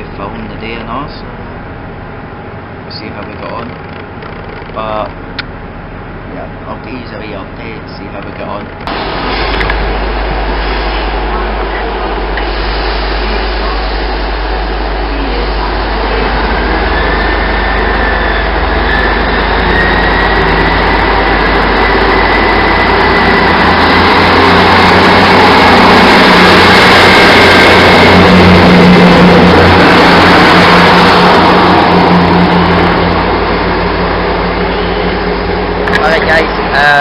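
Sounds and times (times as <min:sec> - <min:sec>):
thin whine rising in pitch: 0:08.9 - 0:37.0
vehicle engine under load: 0:14.4 - 0:37.0.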